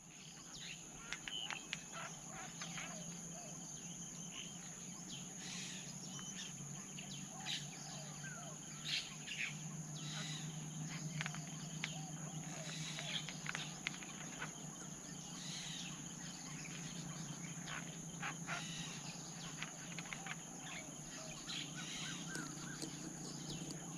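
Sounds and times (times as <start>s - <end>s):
bird chirps: 0.2s - 23.9s
low steady hum: 2.1s - 23.9s.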